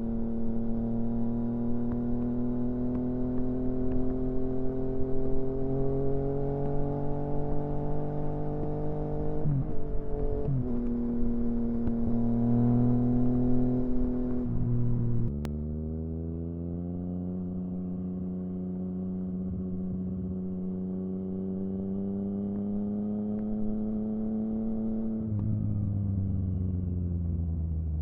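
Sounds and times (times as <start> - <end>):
motorcycle engine running: 16.6 - 27.8.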